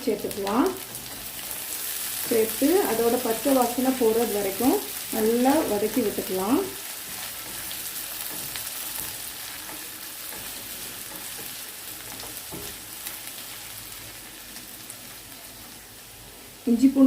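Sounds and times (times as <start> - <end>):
onions sizzling in a pan: 0.0 - 17.0
spatula scraping a pan: 6.8 - 14.0.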